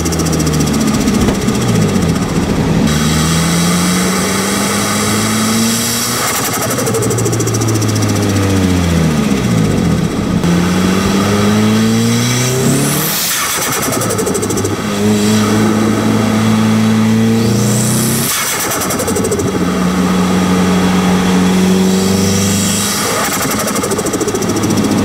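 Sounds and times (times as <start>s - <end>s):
turbo flutter: 0.0s - 5.3s
car engine revving: 0.0s - 25.0s.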